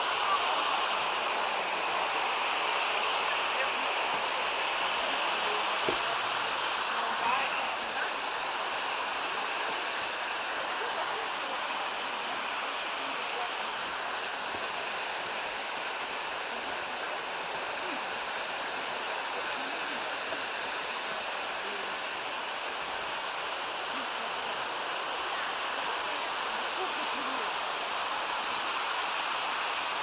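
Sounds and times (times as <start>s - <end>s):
waterfalls rushing over rocks: 0.0s - 30.0s.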